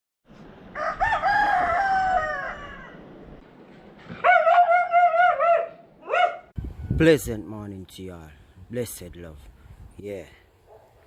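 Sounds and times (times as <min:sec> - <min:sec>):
rooster crowing: 0:00.7 - 0:03.1, 0:04.2 - 0:05.7.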